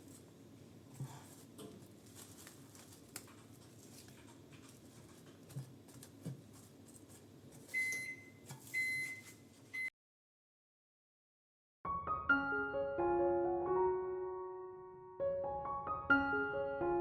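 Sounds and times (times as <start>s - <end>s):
appliance beeping: 7.7s - 9.9s.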